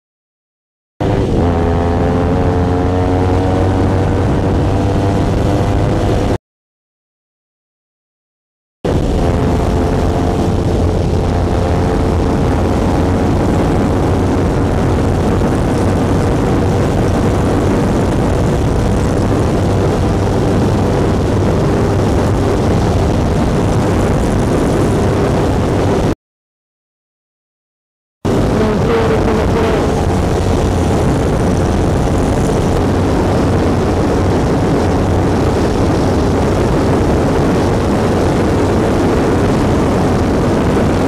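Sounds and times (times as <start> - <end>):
motorcycle engine at high revs: 1.0 - 6.4, 8.9 - 26.1, 28.3 - 41.0
wind rush: 1.0 - 6.4, 8.8 - 26.2, 28.3 - 41.0.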